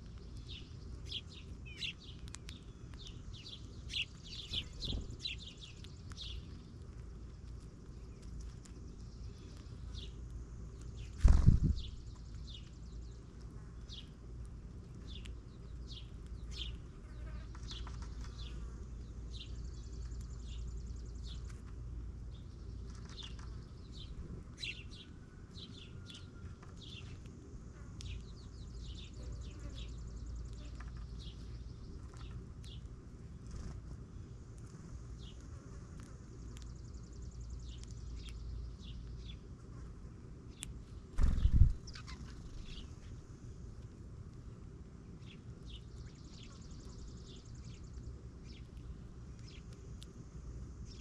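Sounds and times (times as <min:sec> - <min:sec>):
steady low rumble: 0:00.0 - 0:17.0, 0:30.0 - 0:51.0
small birds chirping: 0:00.0 - 0:51.0
low rumble: 0:41.2 - 0:43.0.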